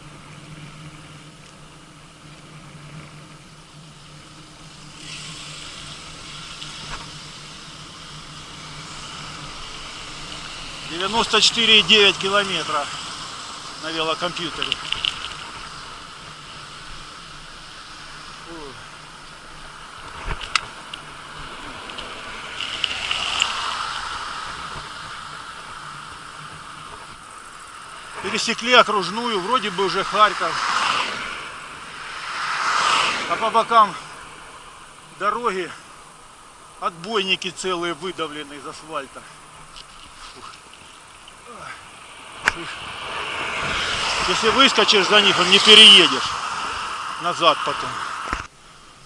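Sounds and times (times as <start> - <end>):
low traffic hum: 0.0 - 49.0
road noise hiss: 0.0 - 49.0
vehicle passing: 0.0 - 49.0.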